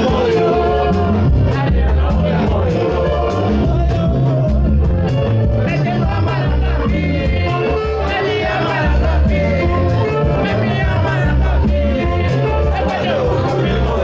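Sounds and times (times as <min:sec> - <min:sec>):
band playing a song: 0:00.0 - 0:14.0
person singing: 0:00.0 - 0:14.0
pulsing bass: 0:00.0 - 0:14.0.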